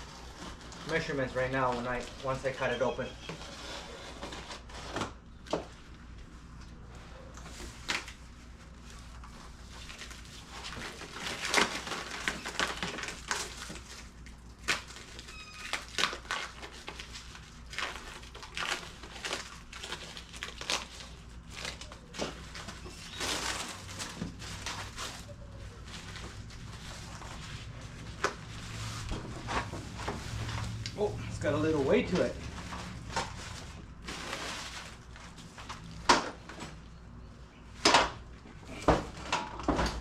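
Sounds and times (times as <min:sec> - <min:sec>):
packing tape crinkling: 0:00.0 - 0:02.7, 0:07.4 - 0:36.6.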